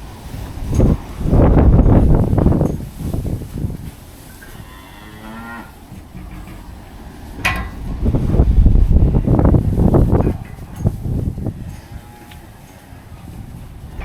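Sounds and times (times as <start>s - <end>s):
wind buffeting microphone: 0.0s - 14.0s
cow mooing: 4.4s - 7.6s, 11.6s - 13.0s.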